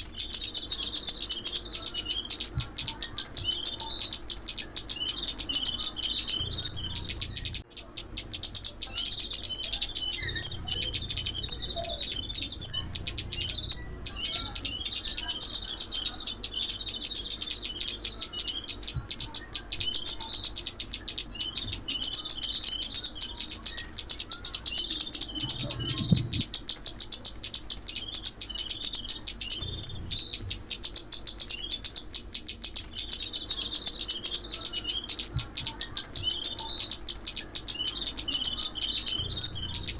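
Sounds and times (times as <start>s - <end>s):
bird twittering chirps: 0.0s - 39.9s.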